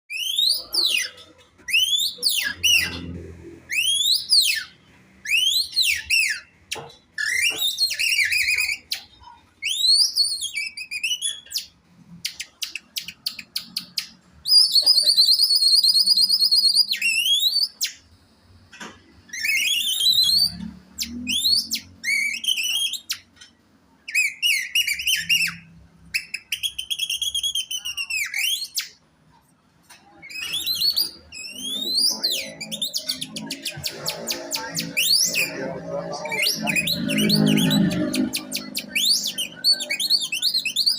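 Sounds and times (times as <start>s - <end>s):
man whistling birdsong imitation: 14.5s - 18.0s.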